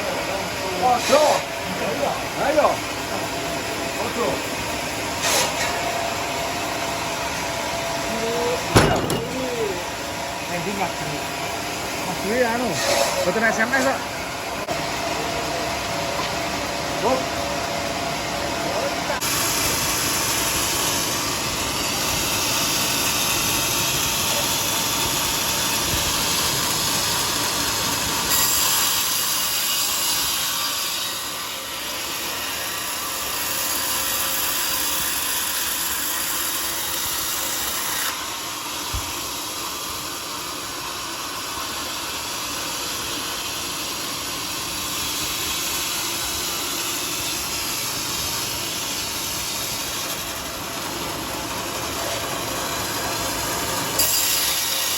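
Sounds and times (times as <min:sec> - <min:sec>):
power saw cutting wood: 0:00.0 - 0:15.5, 0:18.7 - 0:54.9
short knock: 0:08.7 - 0:09.4.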